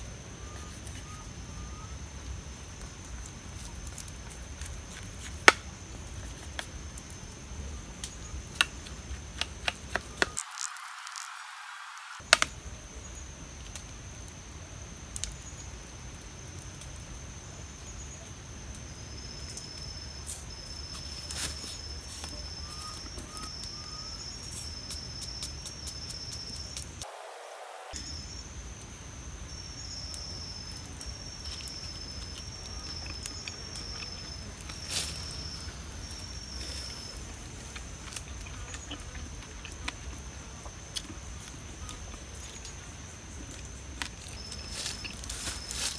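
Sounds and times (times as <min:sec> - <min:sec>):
high chirping: 0:19.4 - 0:28.6.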